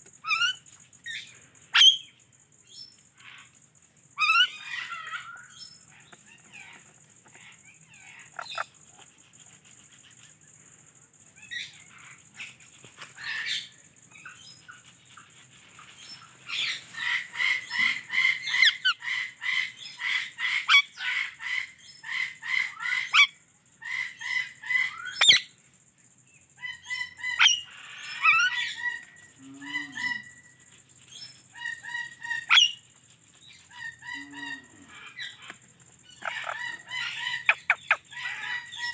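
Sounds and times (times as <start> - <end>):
parakeet chirping and calling: 15.8 - 21.2, 31.6 - 32.8, 36.1 - 38.9.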